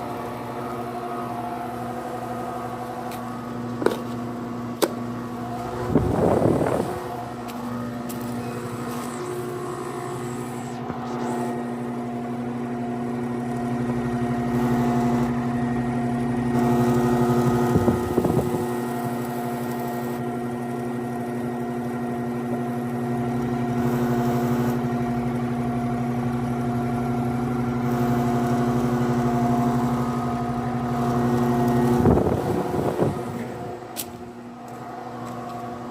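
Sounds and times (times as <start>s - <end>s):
heat pump humming: 0.0s - 35.9s
brief air rush: 8.4s - 12.0s.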